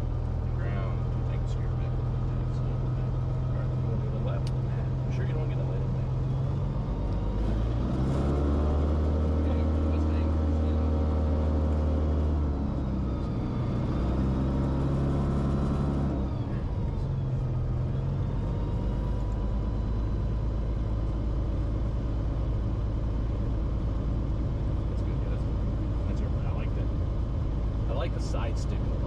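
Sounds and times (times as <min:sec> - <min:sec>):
aircraft engine and propeller idling: 0:00.0 - 0:07.3, 0:16.3 - 0:29.0
falling engine whine: 0:00.0 - 0:29.0.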